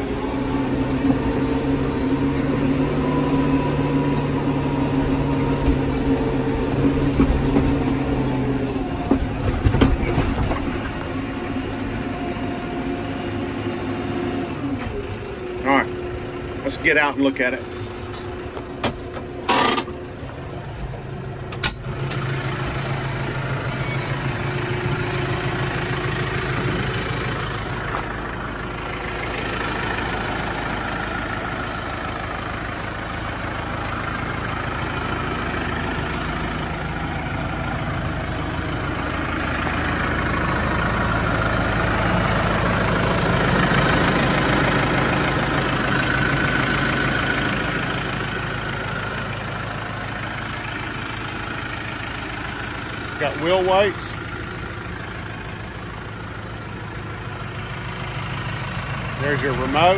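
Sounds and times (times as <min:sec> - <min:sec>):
tractor diesel engine idling: 0:00.0 - 0:59.9.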